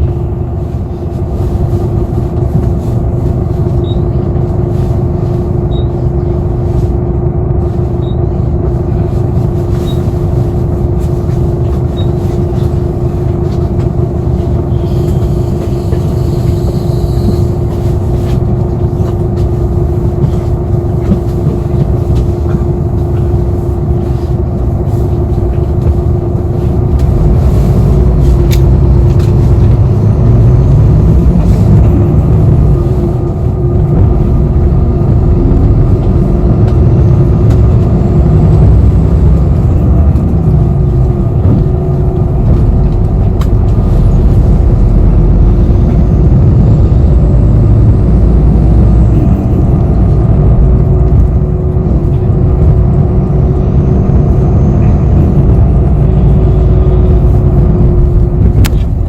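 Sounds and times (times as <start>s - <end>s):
bus engine and road rumble: 0.0s - 59.0s
steady hum: 0.0s - 59.0s.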